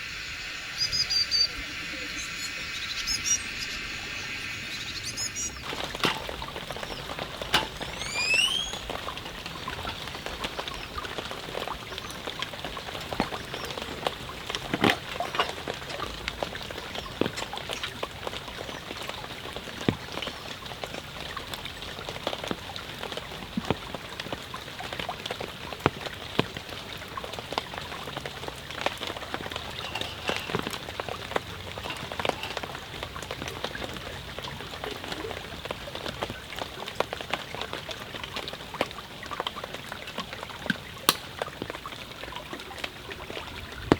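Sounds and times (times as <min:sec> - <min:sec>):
steady rain: 0:00.0 - 0:43.9
sharp clicks and pops: 0:04.8 - 0:35.3, 0:40.2 - 0:41.9.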